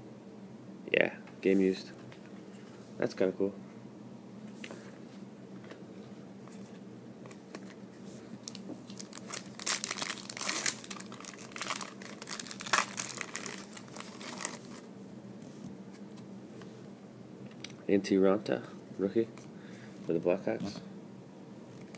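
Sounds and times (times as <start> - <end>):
foil wrapper crinkling and tearing: 8.4 - 14.9.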